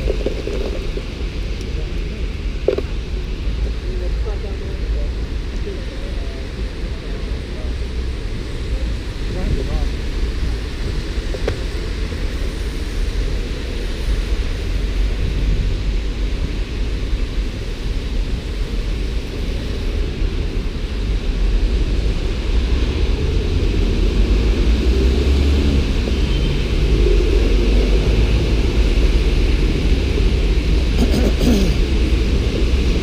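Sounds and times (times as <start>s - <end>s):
low outdoor rumble: 0.0s - 33.0s.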